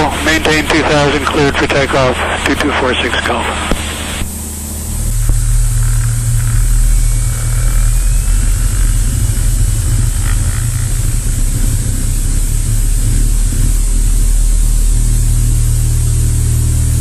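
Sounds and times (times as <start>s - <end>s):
plane engine and propeller: 0.0s - 17.0s.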